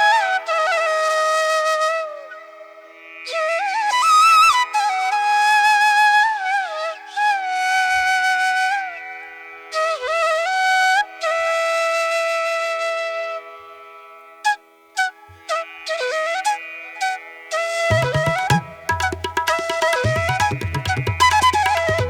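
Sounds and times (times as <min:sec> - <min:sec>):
slow solo flute melody: 0:14.5 - 0:22.0.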